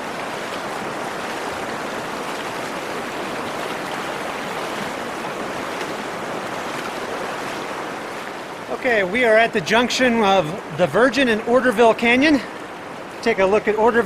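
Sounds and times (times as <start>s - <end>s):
river flowing over rocks: 0.0s - 14.0s.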